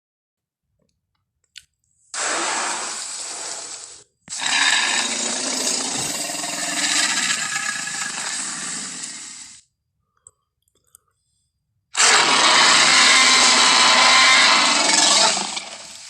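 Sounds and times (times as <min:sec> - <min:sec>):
dinosaur roar: 0:04.4 - 0:09.5, 0:12.0 - 0:16.0.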